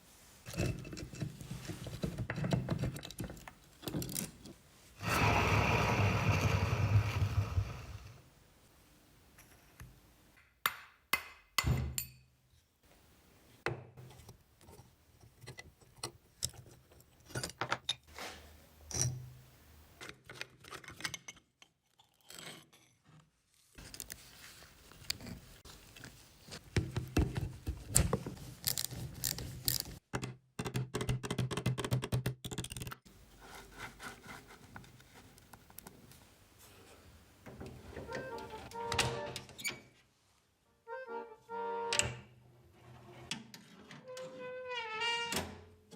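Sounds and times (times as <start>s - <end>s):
knocks and scrapes on metal parts: 0.5s - 4.5s.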